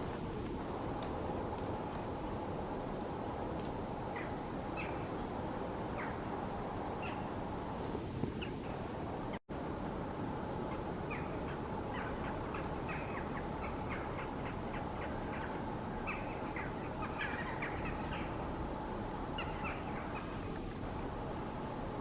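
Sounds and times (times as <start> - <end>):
steady background hum: 0.0 - 22.0
birds calling: 4.0 - 7.6, 10.6 - 21.7.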